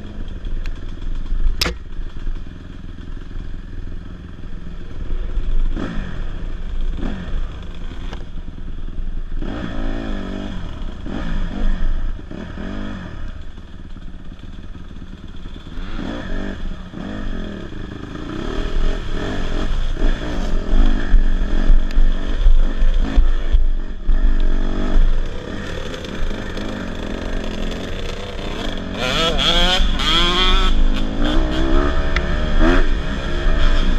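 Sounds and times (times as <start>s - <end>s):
dirt bike engine revving: 5.1s - 8.2s, 9.4s - 13.4s, 15.2s - 33.9s.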